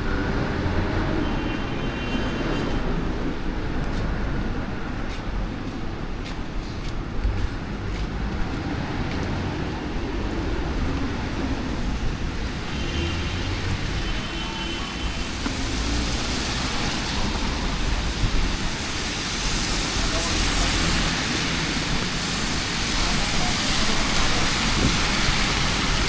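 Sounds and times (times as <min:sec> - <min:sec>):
engine rumble of traffic: 0:00.0 - 0:26.0
tyre hiss on wet pavement: 0:11.9 - 0:26.0.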